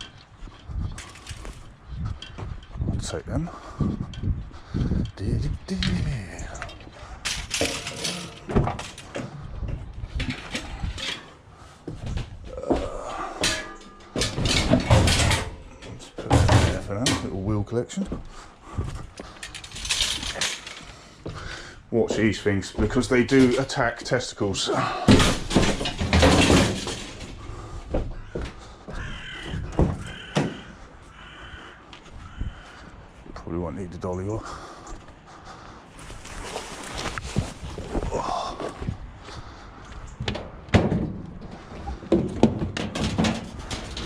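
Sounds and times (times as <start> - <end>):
scrap metal knocking and scraping: 6.6 - 17.5, 25.3 - 28.0, 40.2 - 44.0
crow cawing: 28.1 - 33.2.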